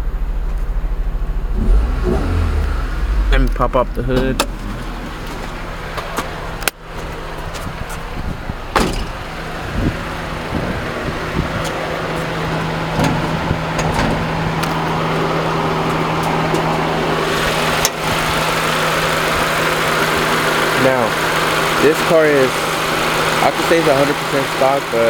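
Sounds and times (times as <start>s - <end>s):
car engine idling: 0.0s - 25.0s
car door opening: 3.4s - 9.4s
car door shutting with a clunk: 3.5s - 6.8s, 8.7s - 9.2s.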